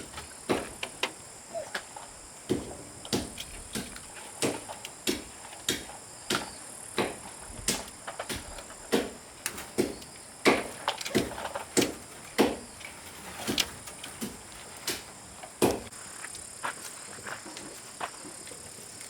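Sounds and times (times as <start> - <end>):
sharp wooden knocks: 0.0 - 1.2, 2.4 - 15.9.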